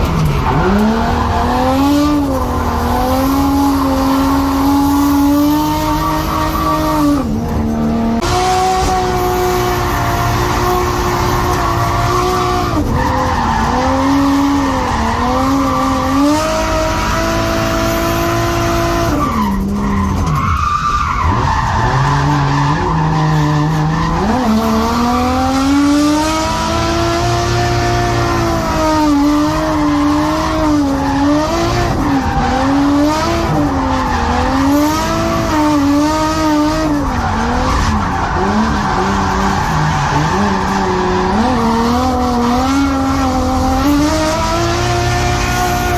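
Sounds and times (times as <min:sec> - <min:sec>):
car engine screaming at high revs: 0:00.0 - 0:45.9.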